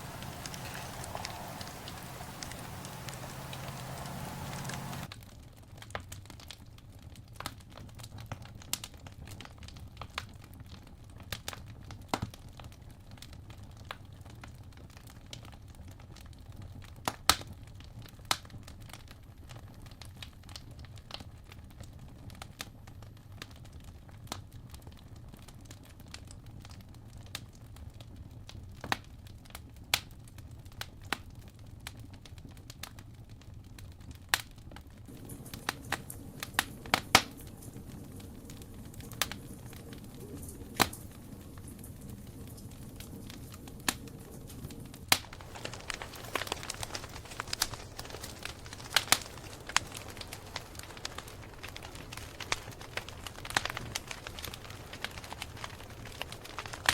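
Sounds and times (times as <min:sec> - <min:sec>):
campfire crackling and popping: 0:00.0 - 0:05.2, 0:31.8 - 0:56.9
low fire rumble: 0:00.0 - 0:05.2, 0:30.6 - 0:56.9.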